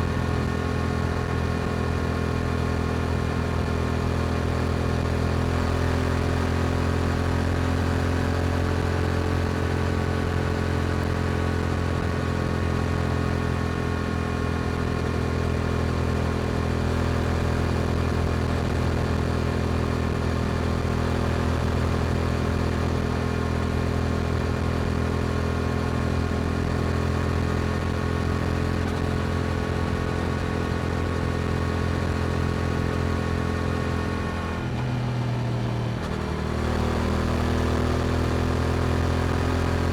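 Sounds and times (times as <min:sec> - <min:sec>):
motorcycle engine cruising: 0:10.4 - 0:39.9.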